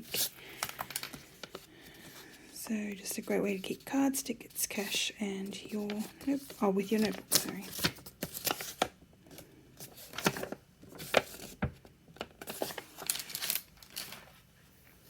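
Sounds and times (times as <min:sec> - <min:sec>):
packaging rustling: 0:00.0 - 0:02.4, 0:05.6 - 0:14.4.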